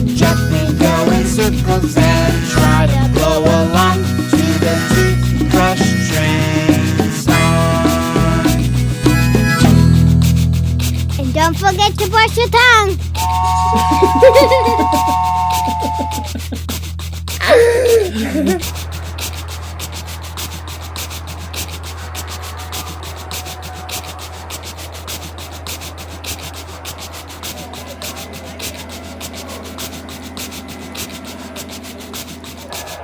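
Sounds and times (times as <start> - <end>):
rhythmic scrubbing: 0.0 - 33.0
downward gliding tone: 13.2 - 16.4.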